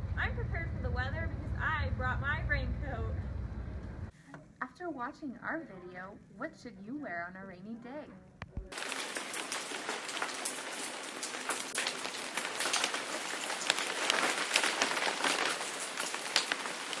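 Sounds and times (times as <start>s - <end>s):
rain falling: 8.7s - 17.0s.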